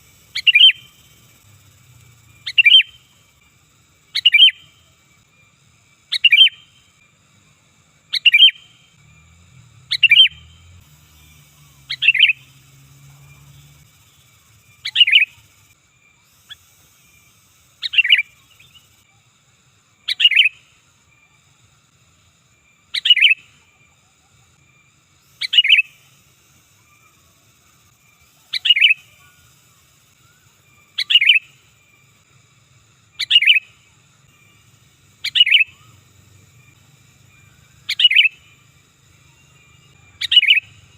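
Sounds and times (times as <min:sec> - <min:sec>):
bird chirping call: 0:00.1 - 0:01.4, 0:02.2 - 0:03.2, 0:04.1 - 0:05.0, 0:06.1 - 0:06.9, 0:08.1 - 0:08.8, 0:09.8 - 0:15.7, 0:16.3 - 0:19.0, 0:20.1 - 0:20.7, 0:22.9 - 0:23.6, 0:25.2 - 0:26.2, 0:28.2 - 0:31.7, 0:33.2 - 0:40.9.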